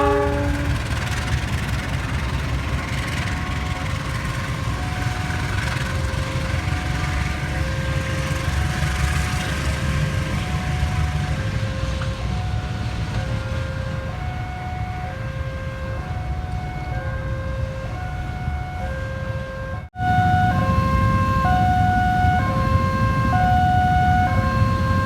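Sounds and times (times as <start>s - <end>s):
train rumbling: 0.0s - 25.0s
two-tone electronic warning signal: 20.0s - 25.0s.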